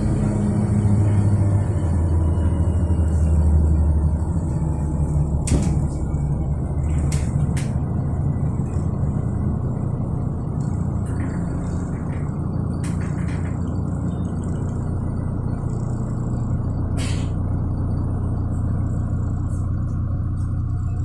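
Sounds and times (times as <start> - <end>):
bus engine low drone: 0.0 - 21.0
sharp rattles or knocks: 10.6 - 14.1.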